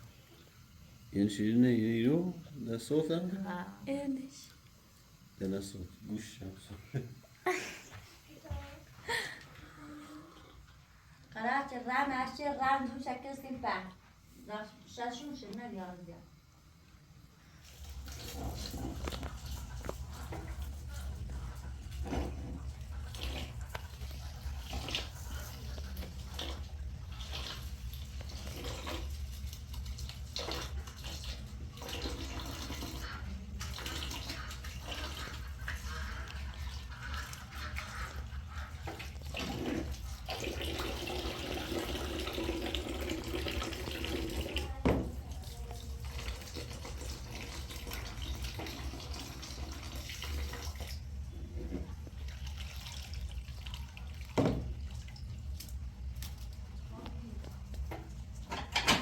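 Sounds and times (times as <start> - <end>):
water running and splashing: 17.5 - 59.0.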